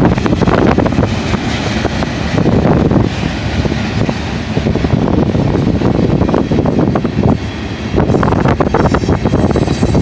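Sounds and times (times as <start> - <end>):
freight train wheels rumbling on rail: 0.0 - 10.0
train clicking and clattering: 0.0 - 10.0.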